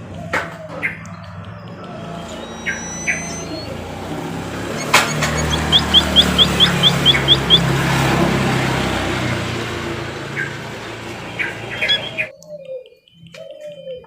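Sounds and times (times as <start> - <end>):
low engine hum: 0.0 - 12.3
bird short high chirps: 2.2 - 3.8, 4.7 - 7.7, 11.4 - 13.3
bird thin high whistles: 2.3 - 3.8, 4.8 - 7.7, 11.8 - 12.4.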